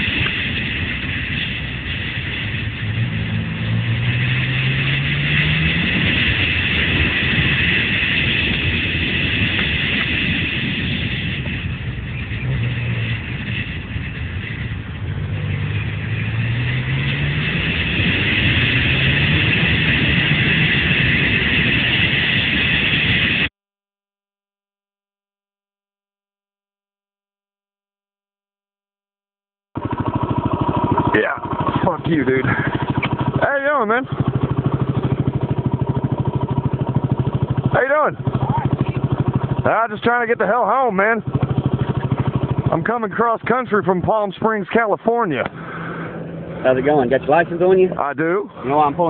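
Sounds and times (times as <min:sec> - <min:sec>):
vehicle engine accelerating: 0:00.0 - 0:23.5, 0:29.8 - 0:49.0
wind noise rushing: 0:00.0 - 0:23.5.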